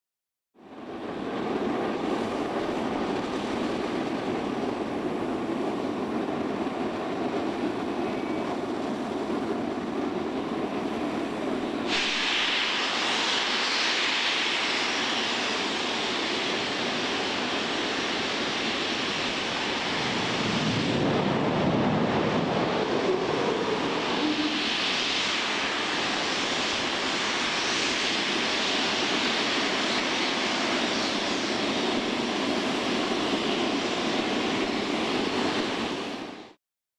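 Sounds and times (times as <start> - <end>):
rocket engine roaring: 10.2 - 36.2.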